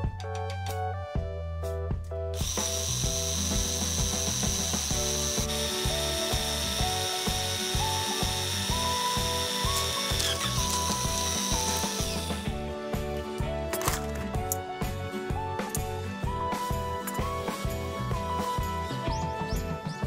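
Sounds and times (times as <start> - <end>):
background music: 0.0 - 20.0
power tool whining: 2.4 - 12.6.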